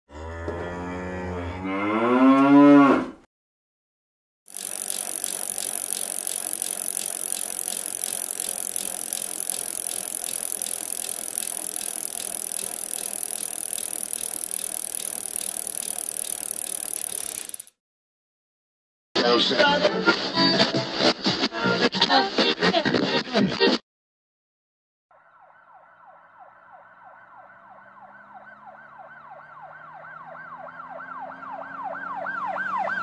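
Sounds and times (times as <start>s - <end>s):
cow mooing: 0.1s - 3.2s
bicycle rolling with clicking rattle: 4.5s - 17.7s.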